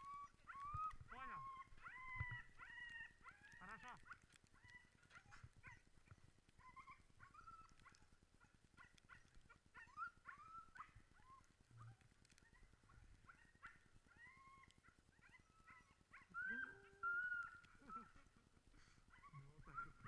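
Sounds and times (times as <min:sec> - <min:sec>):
dogs whining and yelping: 0:00.0 - 0:20.0.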